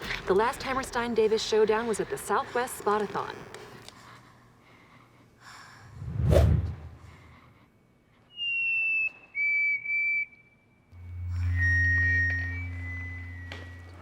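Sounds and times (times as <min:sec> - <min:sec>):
person whistling two-note song: 0:08.3 - 0:14.0
low drone: 0:10.9 - 0:14.0.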